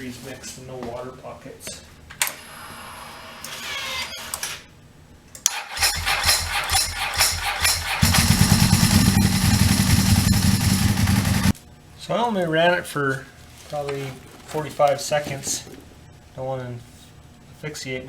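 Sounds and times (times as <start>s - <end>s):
motorcycle engine cranking and running: 5.4s - 11.6s.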